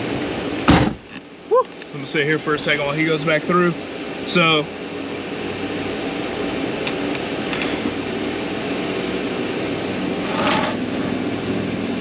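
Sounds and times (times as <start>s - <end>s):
air-moving machinery rushing: 10.0s - 11.7s.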